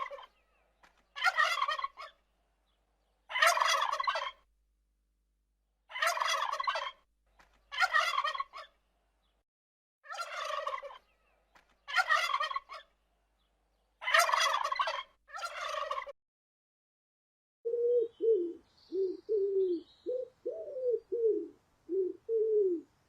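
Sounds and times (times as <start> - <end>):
turkey gobbling: 0.0 - 0.3, 1.2 - 2.2, 3.3 - 4.4, 5.9 - 7.0, 7.7 - 8.8, 10.1 - 11.0, 11.9 - 12.9, 14.0 - 16.1.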